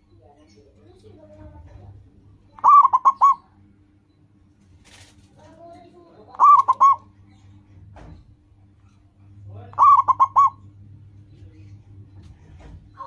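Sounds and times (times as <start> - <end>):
dove cooing: 2.5 - 3.6, 6.3 - 7.1, 9.8 - 10.7.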